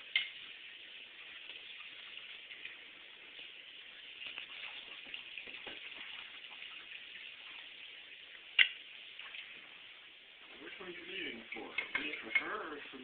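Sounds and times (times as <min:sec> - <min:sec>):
water hissing from tap: 0:00.0 - 0:13.0.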